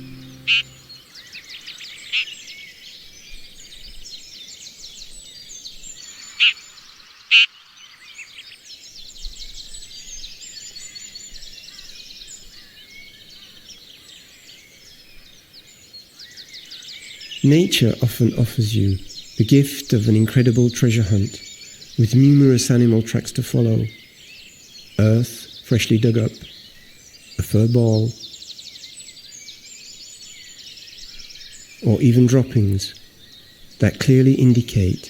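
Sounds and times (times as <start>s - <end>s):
songbirds chorus singing: 0.0s - 35.0s
loud bird calls: 16.1s - 35.0s.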